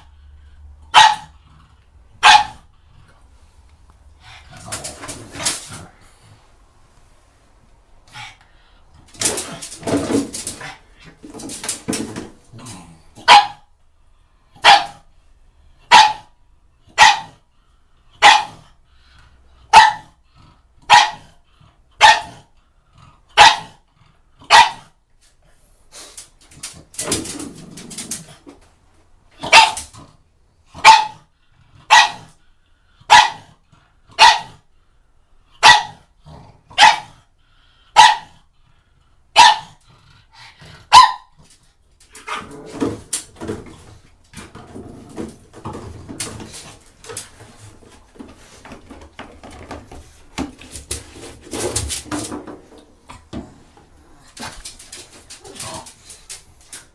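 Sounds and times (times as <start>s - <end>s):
dog barking: 0.9s - 1.4s, 2.2s - 2.7s, 13.2s - 13.7s, 14.6s - 15.0s, 15.9s - 16.3s, 16.9s - 17.4s, 18.2s - 18.6s, 19.7s - 20.1s, 20.8s - 21.4s, 22.0s - 22.5s, 23.4s - 23.8s, 24.5s - 24.9s, 29.4s - 29.8s, 30.8s - 31.3s, 31.9s - 32.3s, 33.1s - 33.5s, 34.2s - 34.6s, 35.6s - 36.0s, 36.8s - 37.2s, 37.9s - 38.4s, 39.3s - 39.8s, 40.9s - 41.3s.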